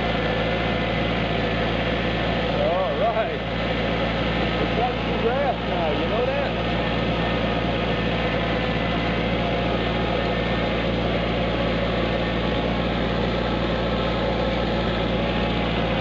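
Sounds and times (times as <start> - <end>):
tractor engine running steadily: 0.0 - 16.0.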